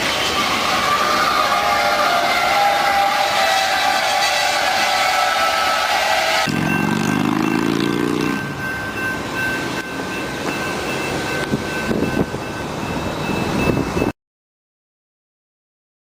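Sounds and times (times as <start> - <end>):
train horn blast: 0.0 - 8.4
train running by: 0.0 - 14.1
thin high ringing tone: 6.4 - 14.1.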